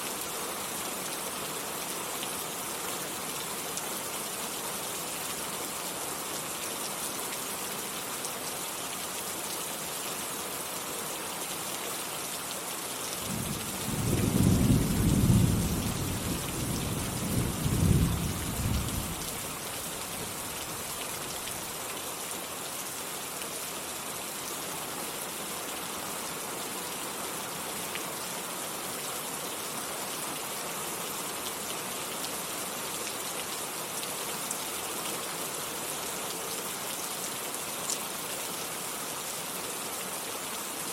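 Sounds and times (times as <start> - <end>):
heavy rain falling: 0.0 - 40.9
thunder rumbling: 13.3 - 19.2.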